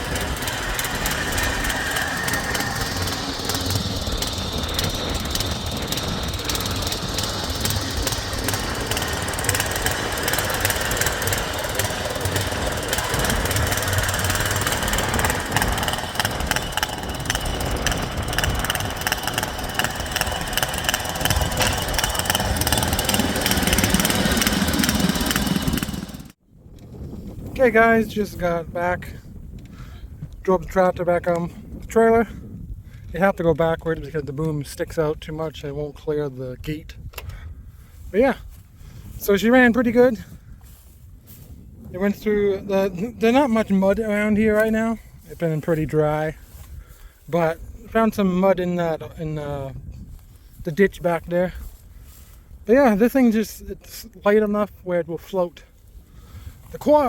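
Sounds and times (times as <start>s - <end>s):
small engine running: 0.0s - 26.4s.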